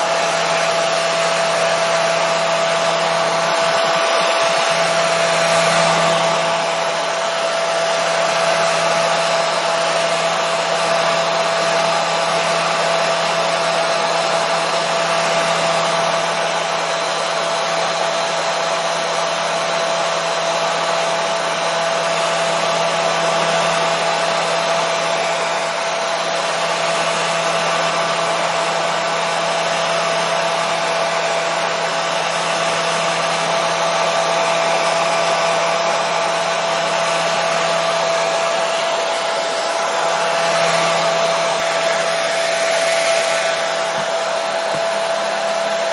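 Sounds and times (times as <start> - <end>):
hair dryer running: 0.0 - 45.9.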